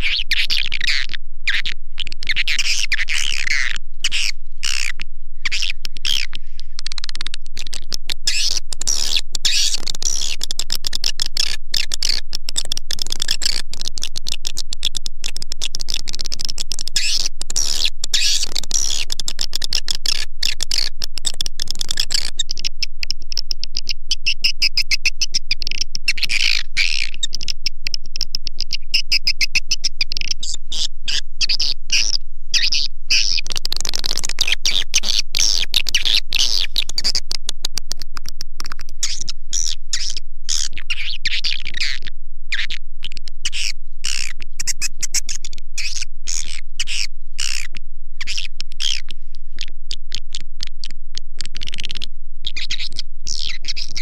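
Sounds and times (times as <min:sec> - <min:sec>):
swiftlet chirps and twitters: 0:00.0 - 0:37.4, 0:38.6 - 0:47.6, 0:51.5 - 0:54.0.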